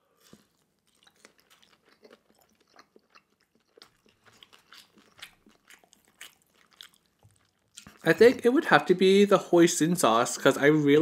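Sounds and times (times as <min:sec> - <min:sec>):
wet mouth chewing clicks: 0:00.4 - 0:08.1.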